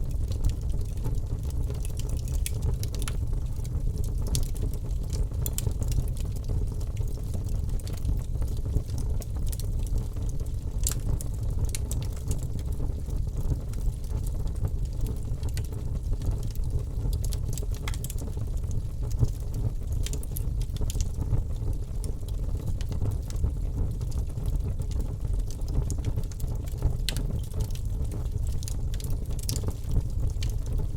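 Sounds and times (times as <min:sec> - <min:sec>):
fire crackling: 0:00.0 - 0:30.9
low rumble of flames: 0:00.0 - 0:30.9.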